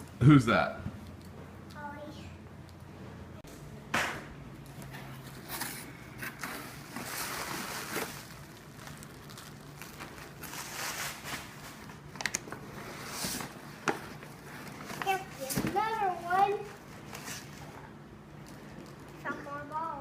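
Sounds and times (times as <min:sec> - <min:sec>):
packaging rustling and crinkling: 0:05.2 - 0:17.8, 0:18.4 - 0:19.8.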